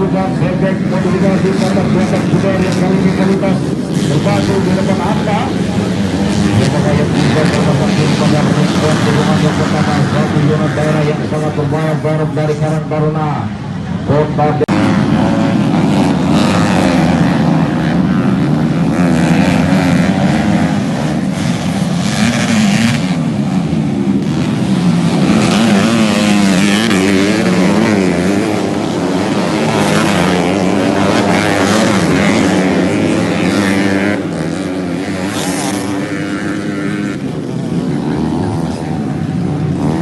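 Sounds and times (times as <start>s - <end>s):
motorcycle engines revving: 0.0s - 40.0s.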